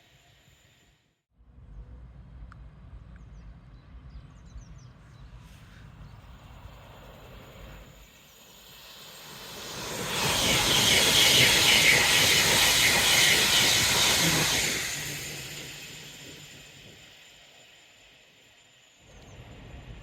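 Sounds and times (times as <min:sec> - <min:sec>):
train wheels rushing on rail: 0:05.0 - 0:20.0.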